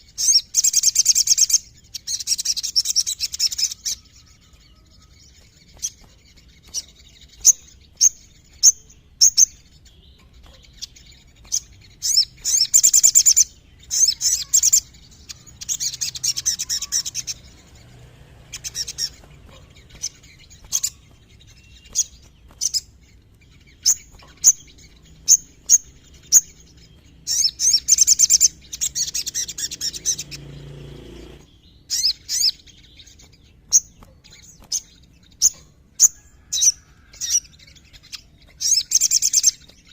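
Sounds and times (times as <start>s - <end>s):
bird rapid rattling trills: 0.0s - 39.9s
bird high chips: 2.2s - 17.9s, 18.5s - 26.6s.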